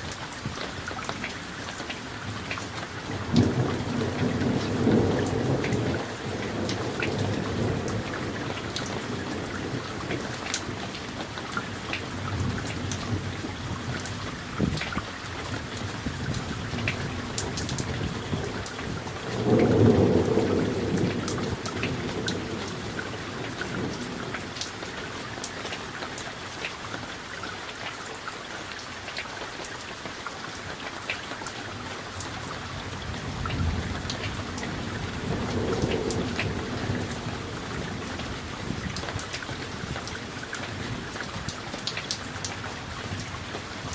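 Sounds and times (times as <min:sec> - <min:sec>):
steady rain: 0:00.0 - 0:43.9
thunder rumbling: 0:03.0 - 0:11.2, 0:15.6 - 0:24.6, 0:32.6 - 0:41.6.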